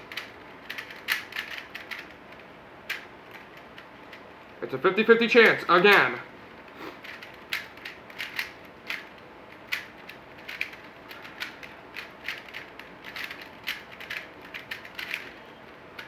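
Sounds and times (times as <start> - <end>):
plastic puzzle cube clicking: 0.1 - 4.2, 7.0 - 15.4.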